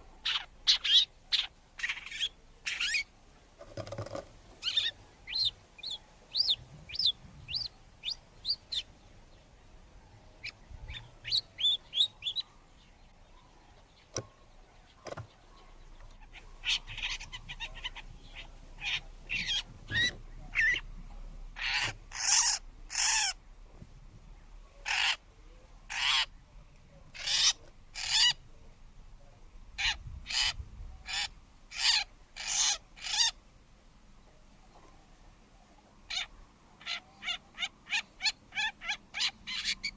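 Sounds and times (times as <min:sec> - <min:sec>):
birds chirping high: 0:00.0 - 0:39.9
loud short bird calls: 0:14.0 - 0:20.9, 0:21.6 - 0:23.4, 0:24.8 - 0:25.2, 0:25.9 - 0:26.3, 0:29.8 - 0:33.4.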